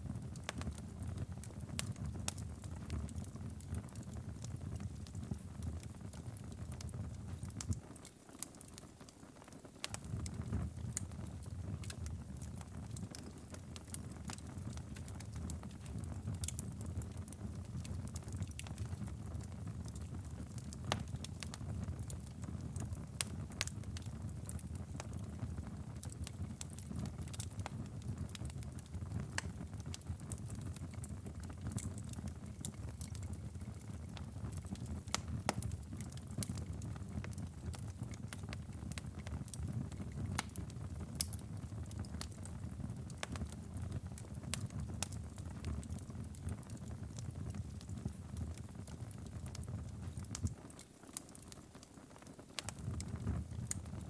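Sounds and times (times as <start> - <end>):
wood fire pops and snaps: 0.1 - 54.0
fire low rumble: 9.9 - 50.6, 52.6 - 54.0.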